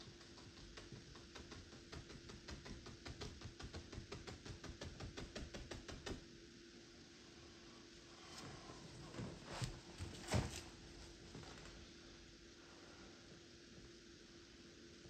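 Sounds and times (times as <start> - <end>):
paintbrush tapping on canvas: 0.0 - 6.2
faint steady hum: 0.0 - 15.0.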